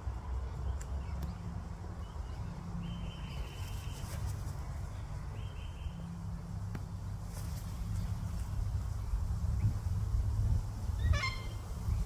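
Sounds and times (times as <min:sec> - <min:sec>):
steady low rumble: 0:00.0 - 0:12.0
bird calls: 0:00.5 - 0:06.2, 0:11.0 - 0:12.0.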